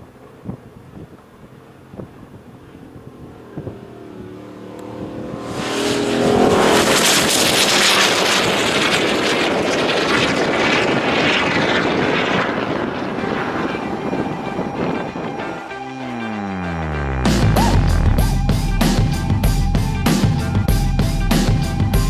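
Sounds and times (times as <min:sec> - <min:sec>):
loud vehicle engine revving: 0:01.5 - 0:13.4
exhaust rushing: 0:02.2 - 0:19.4.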